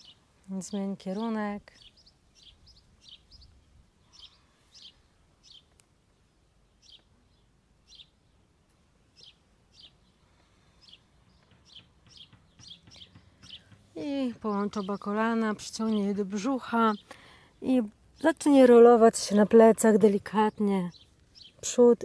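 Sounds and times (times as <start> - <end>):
faint bird chirps: 0.0 - 8.5
faint low background noise: 0.0 - 22.0.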